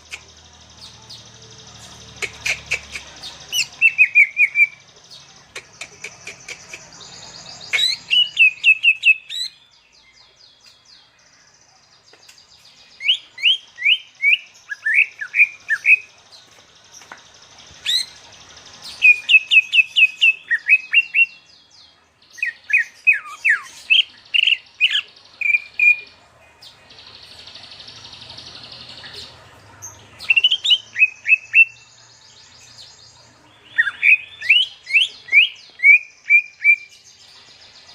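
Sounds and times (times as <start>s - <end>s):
songbird whistling: 33.8s - 36.9s.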